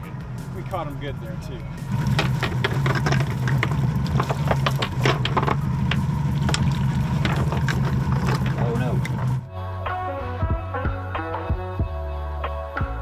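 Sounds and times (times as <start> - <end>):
boat motor running: 1.8 - 9.5
sharp knocks and clatters: 1.9 - 9.5
water splashing: 1.9 - 9.5.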